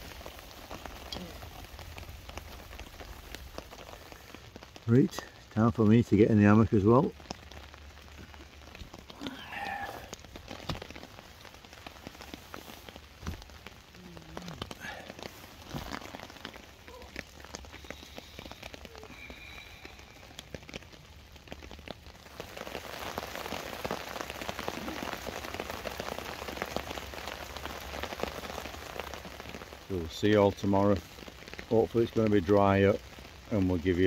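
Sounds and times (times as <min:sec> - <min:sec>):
rain pattering on a tarp: 0:00.0 - 0:34.0
rustling and shuffling: 0:10.1 - 0:18.7.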